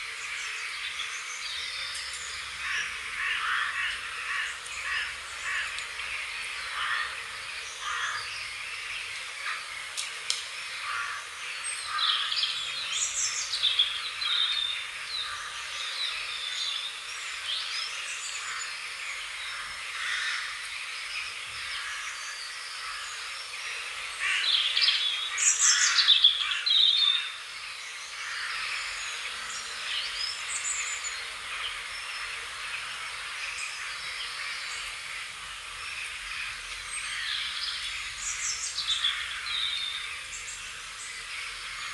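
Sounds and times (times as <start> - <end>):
small birds chirping and singing: 0.0 - 41.9.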